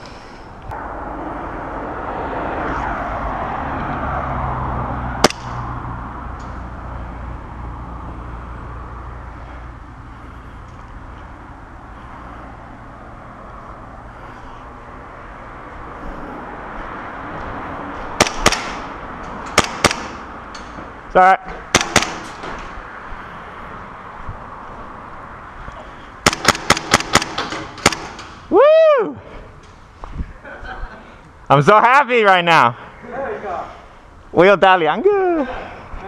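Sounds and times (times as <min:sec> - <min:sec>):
airsoft guns firing: 0:18.2 - 0:18.8, 0:19.6 - 0:20.2, 0:21.7 - 0:22.4, 0:26.2 - 0:28.3.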